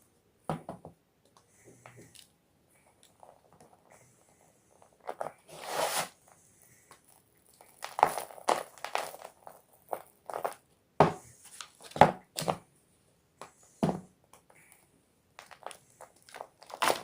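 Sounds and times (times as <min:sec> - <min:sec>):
chalk block crunching: 0:07.0 - 0:10.6, 0:15.4 - 0:17.0.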